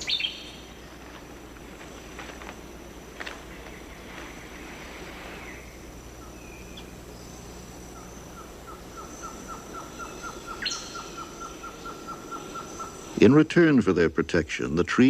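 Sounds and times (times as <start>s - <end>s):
high insect buzz: 0.0s - 13.4s.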